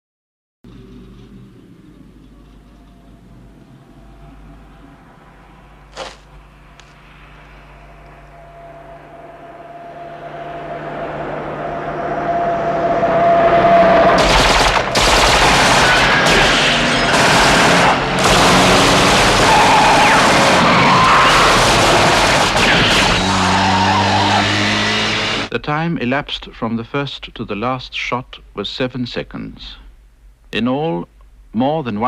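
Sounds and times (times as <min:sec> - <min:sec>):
rapid automatic gunfire: 0:14.2 - 0:20.6, 0:21.4 - 0:23.2.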